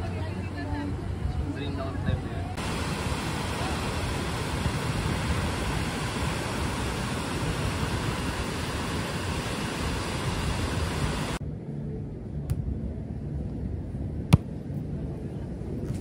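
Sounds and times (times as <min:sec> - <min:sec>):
loud rushing noise: 0:02.6 - 0:11.4.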